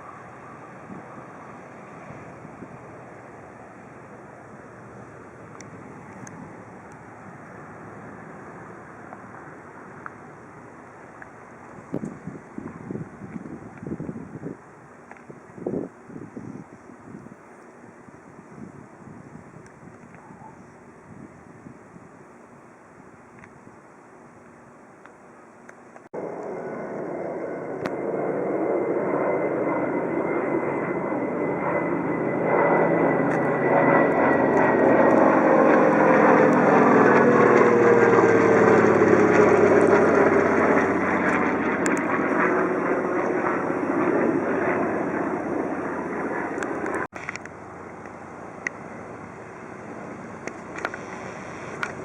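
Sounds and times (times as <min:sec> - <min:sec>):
propeller plane passing by: 0:00.0 - 0:13.8, 0:26.2 - 0:52.0.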